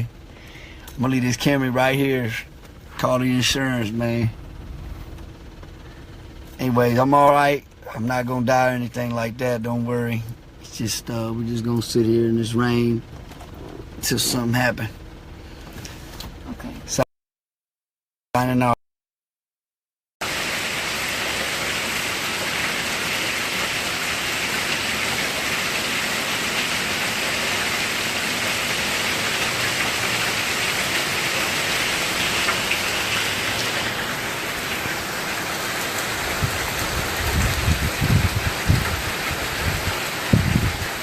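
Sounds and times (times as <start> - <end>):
low rumbling thumps: 13.0 - 16.4, 36.2 - 41.0
heavy rain hiss: 20.2 - 41.0.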